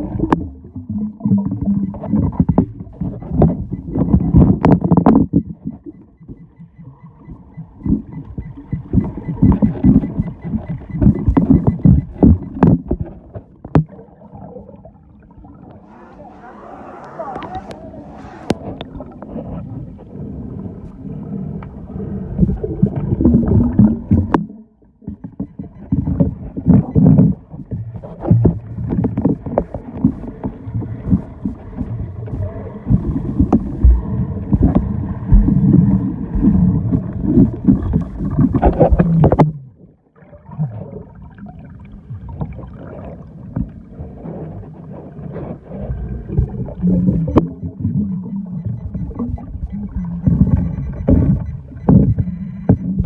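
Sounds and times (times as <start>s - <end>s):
water sloshing and splashing: 22.4s - 53.0s.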